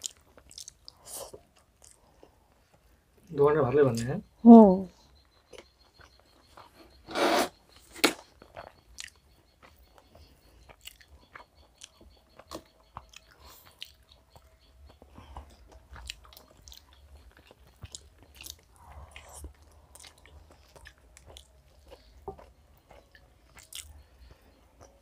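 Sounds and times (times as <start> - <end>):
wet chewing and biting: 0.0 - 2.4, 7.7 - 24.1.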